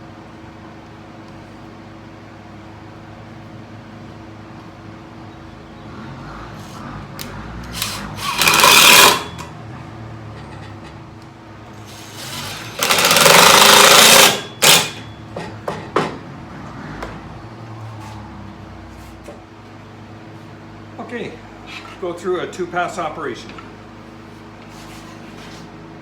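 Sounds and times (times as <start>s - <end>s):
table saw cutting wood: 6.0s - 9.5s, 11.8s - 15.1s.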